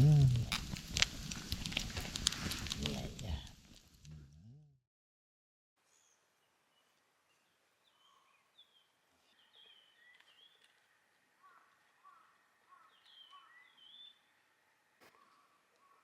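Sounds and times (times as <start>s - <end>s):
bird chirps: 5.9s - 14.4s.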